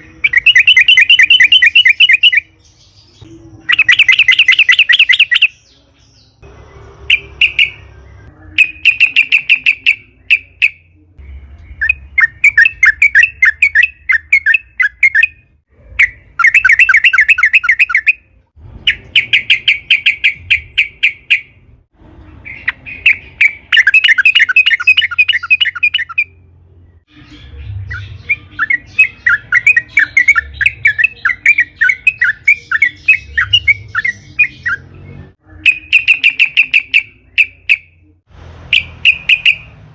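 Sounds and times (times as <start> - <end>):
bulbul singing bubbly chatter: 0.0 - 2.5, 3.6 - 5.6, 6.4 - 18.2, 22.4 - 26.3, 27.9 - 34.8.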